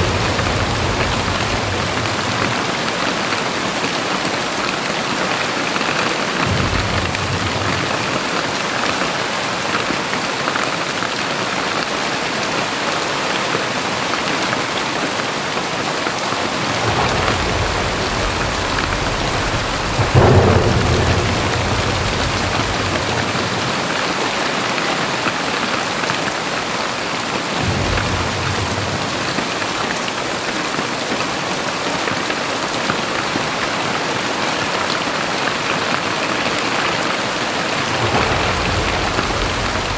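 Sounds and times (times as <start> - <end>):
thunder rumbling: 0.0 - 4.6, 5.8 - 8.7, 16.2 - 24.8, 27.6 - 30.5, 37.1 - 39.9
heavy rain falling: 0.0 - 39.9.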